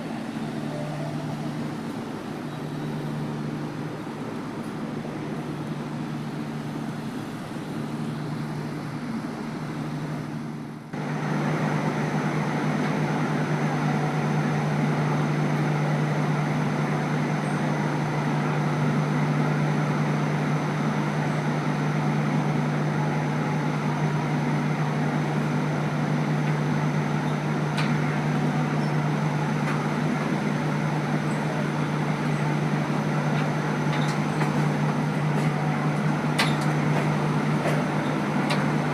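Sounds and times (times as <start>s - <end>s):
train diesel engine humming: 0.0s - 38.9s.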